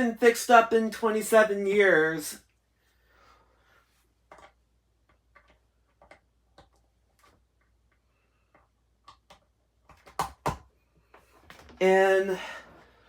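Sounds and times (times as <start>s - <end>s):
plastic parts clicking and tapping: 4.3s - 11.8s.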